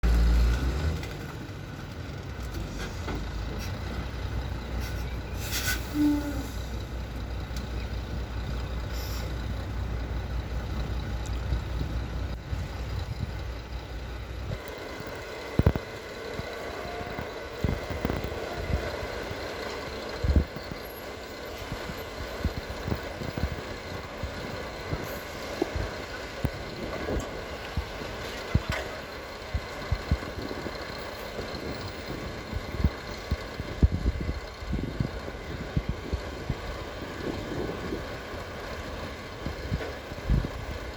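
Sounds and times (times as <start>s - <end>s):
truck engine rumbling: 0.0s - 40.9s
air hissing: 4.8s - 6.8s.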